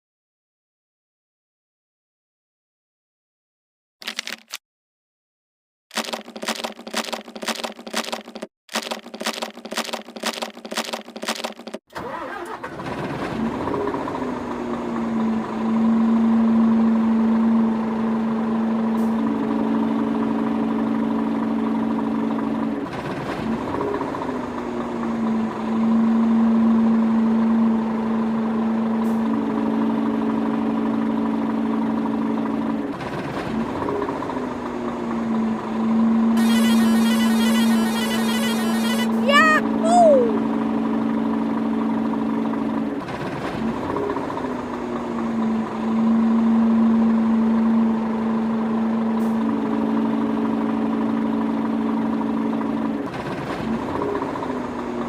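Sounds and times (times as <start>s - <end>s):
engine cranking: 5.9s - 13.0s
engine running: 6.0s - 55.0s.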